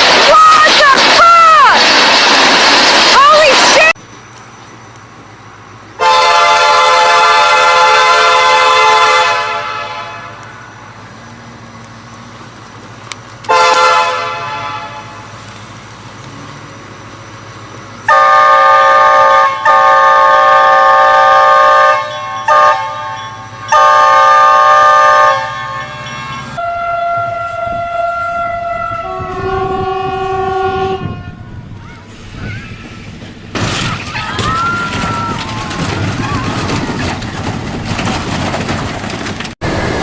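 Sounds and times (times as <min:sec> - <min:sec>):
train air horn blasts: 0:06.0 - 0:10.7, 0:13.5 - 0:15.4, 0:18.1 - 0:31.5.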